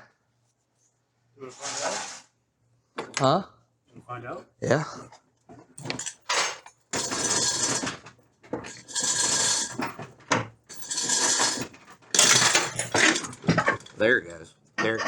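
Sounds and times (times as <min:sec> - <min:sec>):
metal scraping and clanking: 0:01.5 - 0:02.2, 0:05.8 - 0:14.2.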